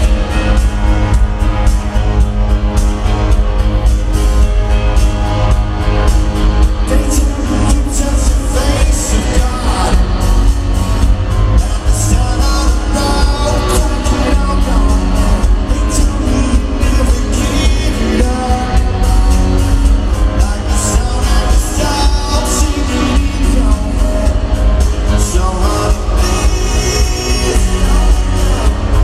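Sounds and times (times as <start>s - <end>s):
heavy bass and drums: 0.0s - 29.0s
live rock band playing: 0.0s - 29.0s
person singing: 6.6s - 29.0s.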